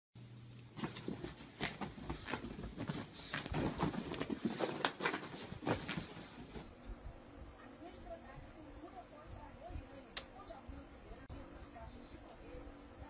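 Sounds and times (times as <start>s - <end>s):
dog paws tapping and scrabbling: 0.7s - 6.6s.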